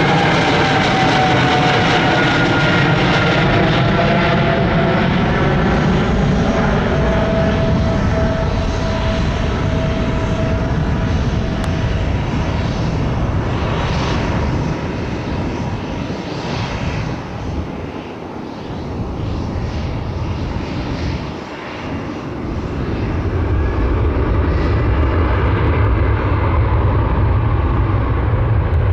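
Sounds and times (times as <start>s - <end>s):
jet engines roaring: 0.0s - 28.9s
heavy low rumble: 3.9s - 16.0s
whining tones: 4.4s - 13.9s.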